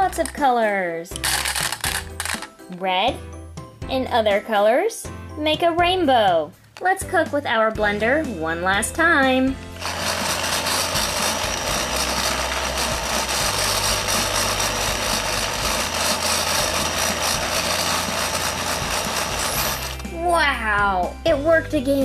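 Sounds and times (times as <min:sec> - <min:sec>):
small electric motor whirring: 0:09.8 - 0:20.1.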